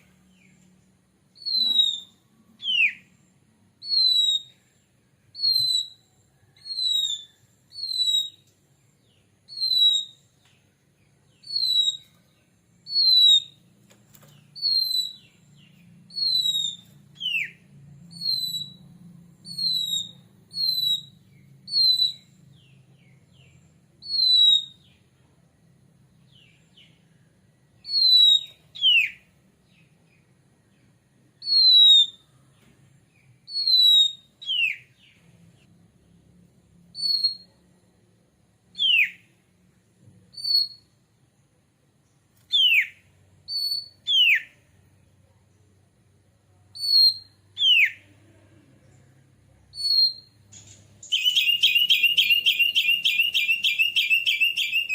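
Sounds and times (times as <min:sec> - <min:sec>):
bird down-slurred whistles: 0:01.4 - 0:03.1, 0:03.8 - 0:04.6, 0:05.4 - 0:08.5, 0:09.5 - 0:10.3, 0:11.4 - 0:12.1, 0:12.9 - 0:13.6, 0:14.6 - 0:15.4, 0:16.1 - 0:18.8, 0:19.4 - 0:22.3, 0:24.0 - 0:24.9, 0:27.8 - 0:29.2, 0:33.5 - 0:34.9, 0:37.0 - 0:37.6, 0:40.3 - 0:40.9, 0:42.5 - 0:44.6, 0:46.8 - 0:48.1, 0:49.8 - 0:50.4, 0:51.0 - 0:54.9.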